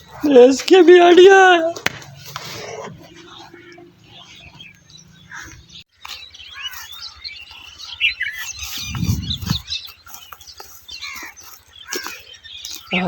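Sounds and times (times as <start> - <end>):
small birds chirping: 0.0 - 13.0
low rumble: 8.8 - 9.7.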